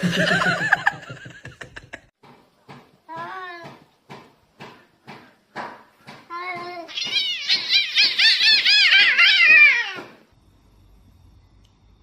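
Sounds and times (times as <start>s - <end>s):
cat meowing rapidly: 6.9s - 10.2s.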